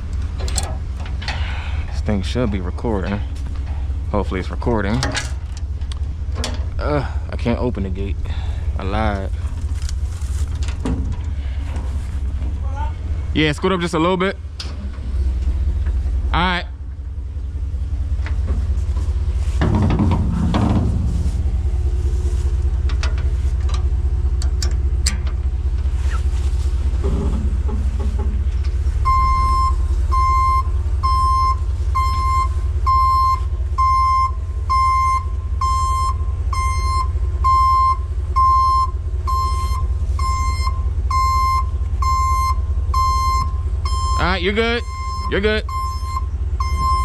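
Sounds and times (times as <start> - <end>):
vehicle engine rumbling: 0.0 - 47.0
reversing alarm beeps: 29.0 - 47.0.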